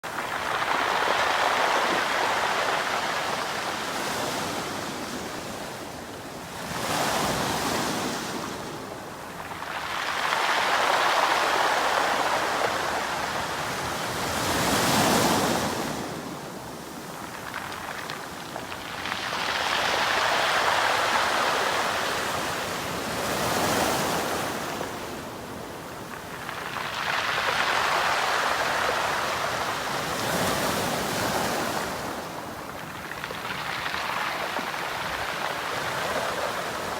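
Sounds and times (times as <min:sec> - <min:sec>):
waves breaking on pebble beach: 0:00.1 - 0:36.9
pebbles rattling and hissing: 0:16.8 - 0:22.6, 0:25.6 - 0:36.9.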